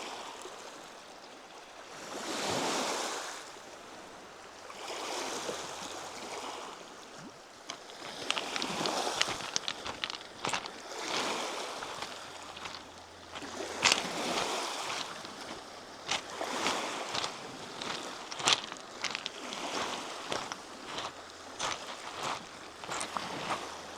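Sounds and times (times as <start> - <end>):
lake waves washing onto shore: 4.8 - 23.9.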